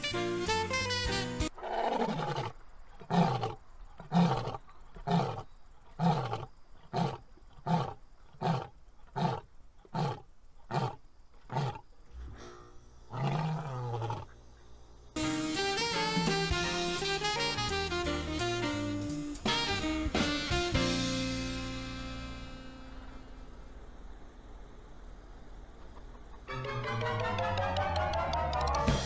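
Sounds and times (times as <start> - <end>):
deep roaring animal call: 1.6 - 14.4.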